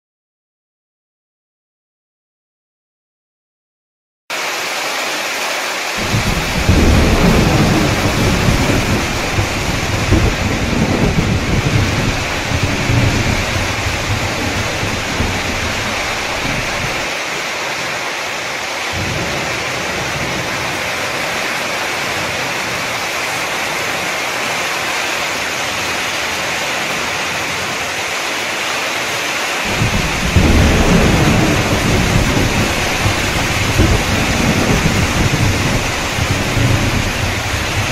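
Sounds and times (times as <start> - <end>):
heavy rain hissing: 4.3 - 37.9
deep thunder rumble: 6.0 - 17.1, 29.7 - 37.9.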